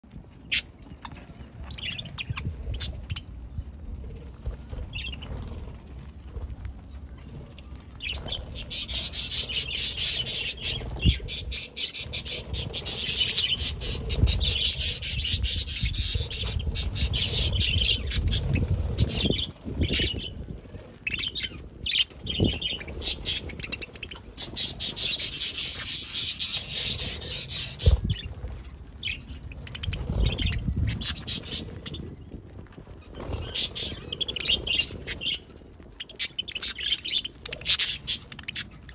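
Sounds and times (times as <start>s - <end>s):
wing flutters: 0.0s - 38.9s
budgerigars chattering: 8.0s - 20.3s, 21.1s - 28.3s, 36.0s - 38.9s.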